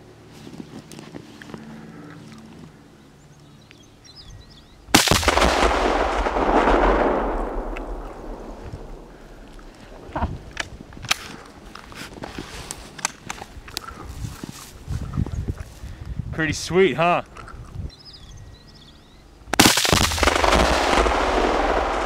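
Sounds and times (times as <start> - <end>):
explosion blast with rolling rumble: 4.9 - 9.5, 19.6 - 22.0
faint bird chirps: 17.9 - 19.3.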